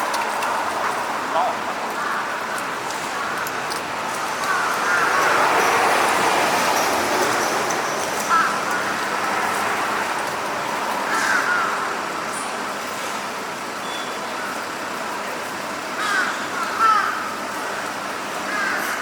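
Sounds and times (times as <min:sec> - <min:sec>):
urban traffic noise: 0:00.0 - 0:19.0
crow calls: 0:00.8 - 0:06.1, 0:08.2 - 0:09.2, 0:11.0 - 0:12.0, 0:16.0 - 0:19.0.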